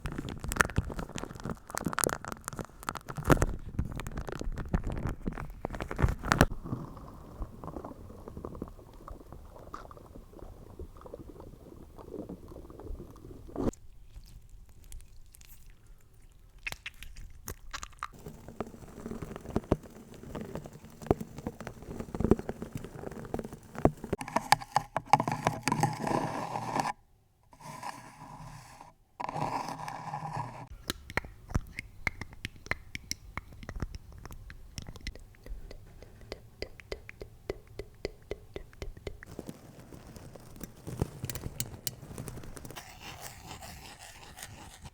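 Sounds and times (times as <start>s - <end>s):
crackling: 0.0s - 13.8s, 16.6s - 24.2s, 30.6s - 44.9s
tapping: 30.7s - 42.7s.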